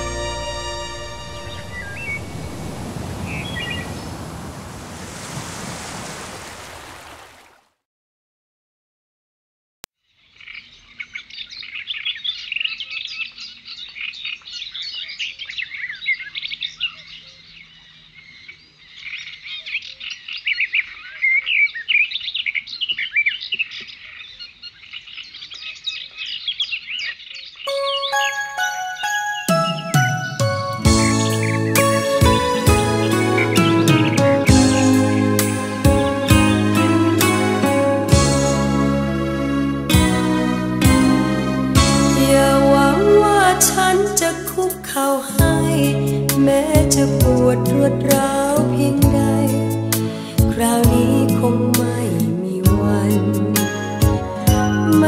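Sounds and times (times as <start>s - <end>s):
music: 0.0s - 2.3s, 27.7s - 55.0s
birds chirping and tweeting: 1.1s - 5.9s, 10.1s - 36.9s.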